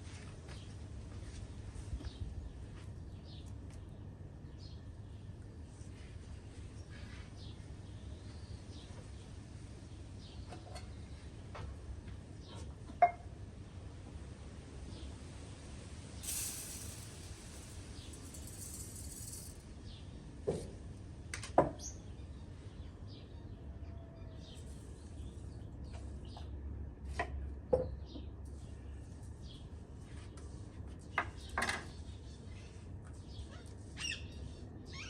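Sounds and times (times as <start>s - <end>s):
brief hiss: 16.2s - 19.6s.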